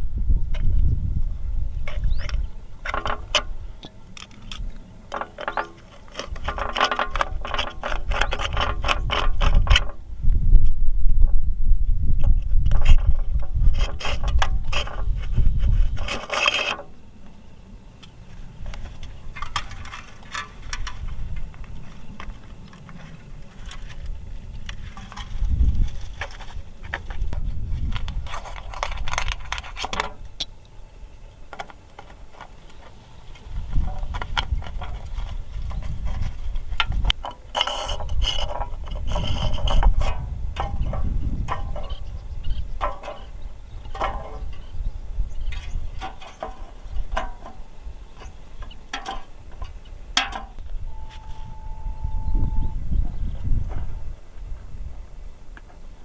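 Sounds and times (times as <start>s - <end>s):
low rumble: 50.6s - 55.1s
short steady tone: 50.8s - 54.1s.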